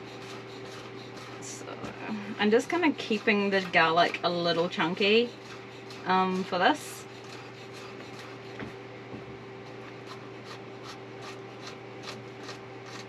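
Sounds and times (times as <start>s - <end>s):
steady low hum: 0.0s - 13.0s
knife chopping on cutting board: 2.8s - 13.0s.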